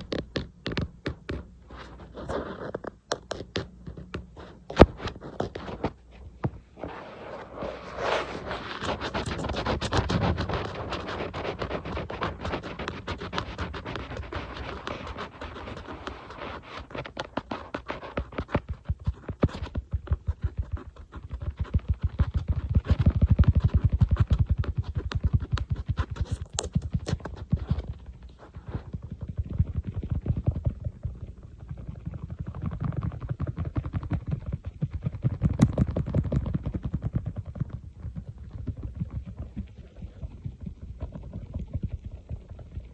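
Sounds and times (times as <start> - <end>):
fingers tapping on tablet: 0.0 - 1.5
fingers scratching on tablet: 0.0 - 6.0, 6.8 - 30.5.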